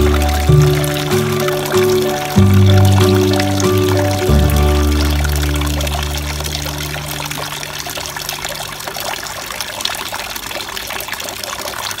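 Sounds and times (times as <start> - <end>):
background music: 0.0 - 8.5
water pouring into fountain basin: 0.0 - 12.0.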